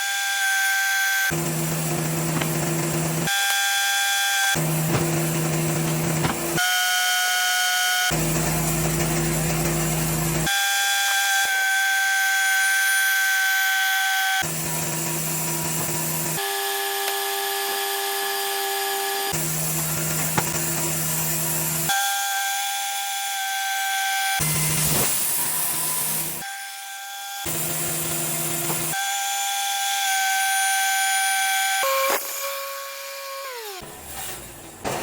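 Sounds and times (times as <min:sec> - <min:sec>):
band sawmill sawing wood: 0:01.1 - 0:03.3, 0:04.5 - 0:06.6.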